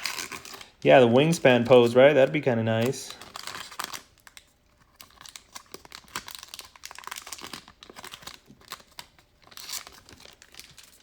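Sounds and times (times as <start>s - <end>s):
trading cards clicking and rustling: 0.0s - 4.0s.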